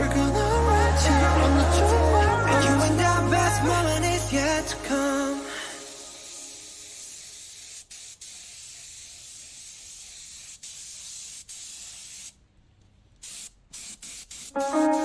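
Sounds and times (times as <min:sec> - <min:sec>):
compressed air hissing: 0:05.4 - 0:12.4, 0:13.2 - 0:15.0.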